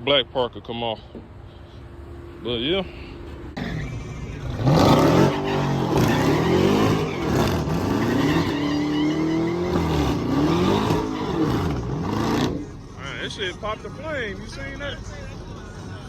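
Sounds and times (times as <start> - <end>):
car engine revving: 3.4 - 12.9.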